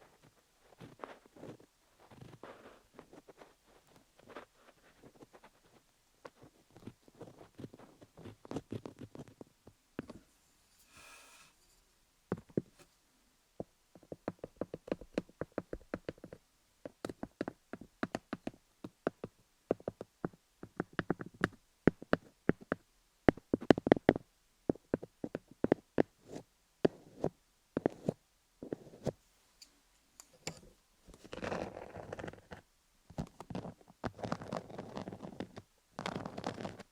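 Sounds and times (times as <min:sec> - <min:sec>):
squeaky scrape: 0:10.1 - 0:11.9.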